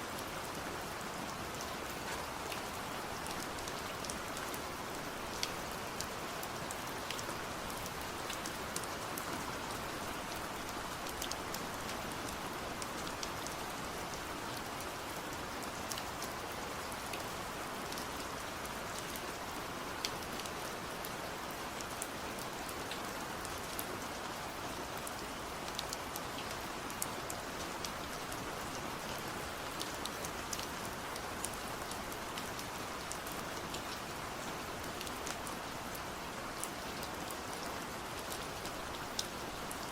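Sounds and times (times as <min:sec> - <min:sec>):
steady rain hiss: 0:00.0 - 0:39.9
raindrops ticking on surface: 0:01.3 - 0:39.9.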